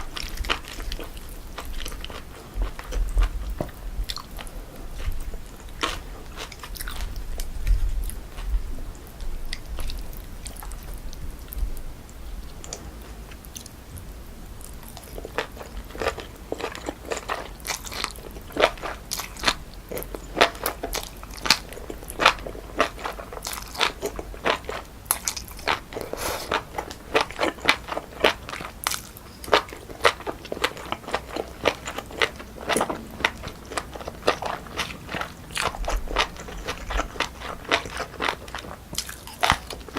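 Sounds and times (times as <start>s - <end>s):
wet crunchy chewing: 0.0s - 11.6s, 14.6s - 39.9s.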